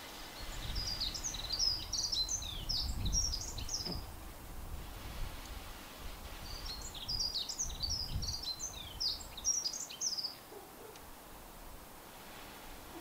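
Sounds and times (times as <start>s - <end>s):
songbird chirping: 0.0s - 4.2s, 6.2s - 11.5s.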